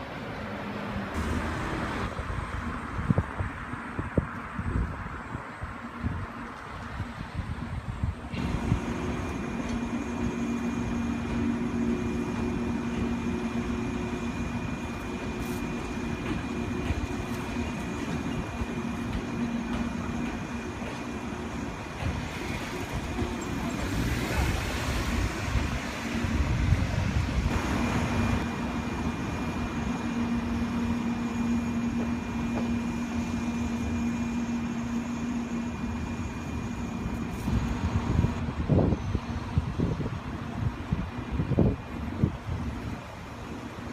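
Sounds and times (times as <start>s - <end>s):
train hum: 0.0s - 43.9s
rush of noise: 7.0s - 43.9s
thin high whine: 27.5s - 39.6s.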